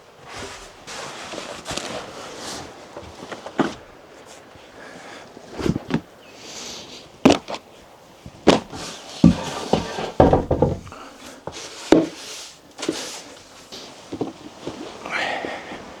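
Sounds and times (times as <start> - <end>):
sharp knocks and thuds: 8.5 - 11.0
clattering: 9.3 - 11.0.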